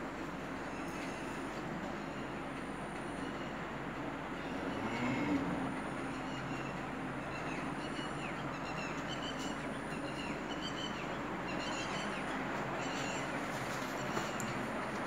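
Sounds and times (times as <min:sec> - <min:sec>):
steady rumbling background noise: 0:00.0 - 0:15.0
small birds chirping: 0:06.0 - 0:14.7.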